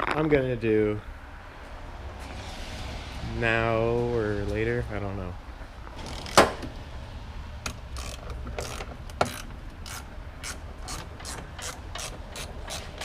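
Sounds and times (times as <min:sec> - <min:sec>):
socket ratchet clicking: 0:07.7 - 0:13.0.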